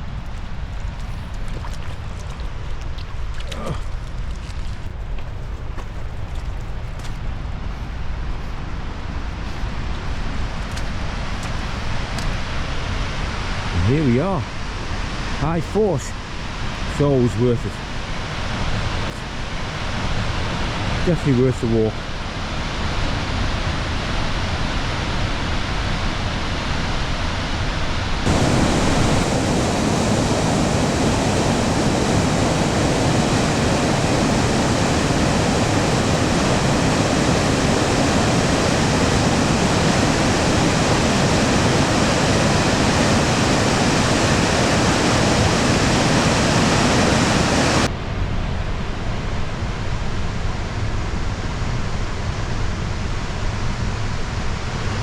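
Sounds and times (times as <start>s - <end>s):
waterfall rushing: 28.2s - 47.9s.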